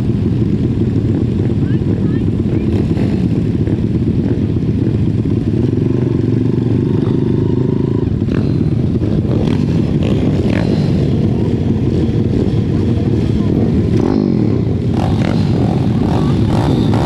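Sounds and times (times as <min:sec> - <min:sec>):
small motorbike engine racing: 0:00.0 - 0:17.0.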